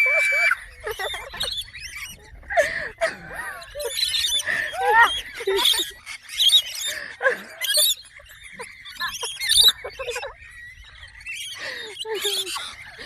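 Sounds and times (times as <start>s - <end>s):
birds chirping and squawking: 0.0s - 13.0s.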